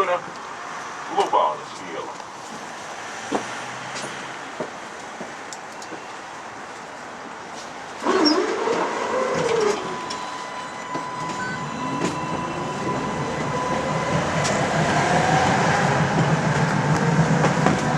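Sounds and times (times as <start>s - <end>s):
wheels rumbling on rails: 1.2s - 17.9s
tram motor whining: 8.0s - 17.9s.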